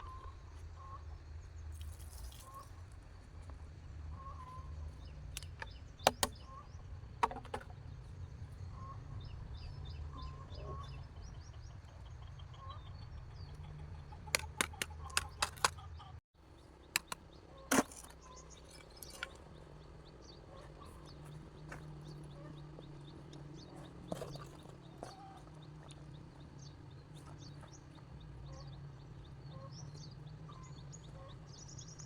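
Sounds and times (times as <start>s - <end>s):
small birds chirping: 4.2s - 32.0s
sharp knocks and clicks: 5.4s - 6.4s, 14.3s - 15.8s.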